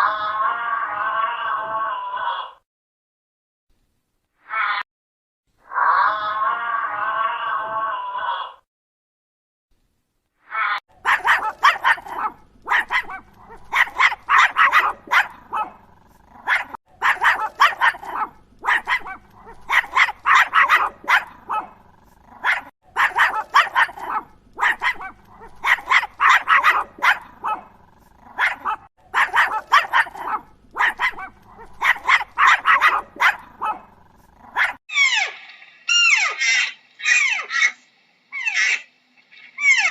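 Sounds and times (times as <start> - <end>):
dog barking: 11.0 - 15.8, 16.4 - 35.3.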